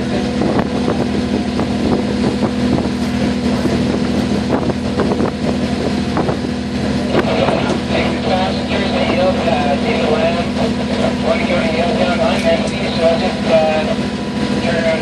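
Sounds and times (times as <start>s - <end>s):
wind on microphone: 0.0s - 10.9s
boat engine droning: 0.0s - 15.0s
water rushing: 0.0s - 15.0s.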